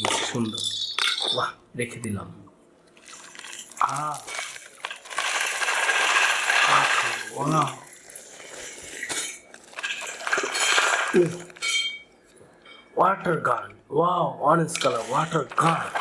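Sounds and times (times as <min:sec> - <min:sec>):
stones clattering and rattling: 0:03.2 - 0:07.6, 0:08.9 - 0:11.8.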